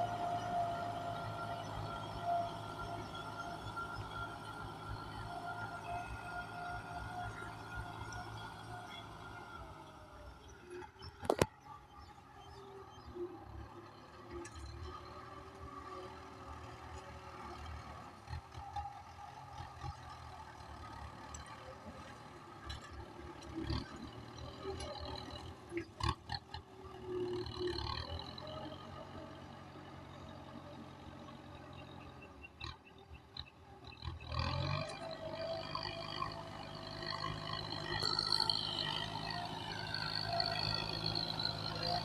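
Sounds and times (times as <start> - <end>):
tractor diesel engine running: 0.0 - 11.5, 34.1 - 42.0.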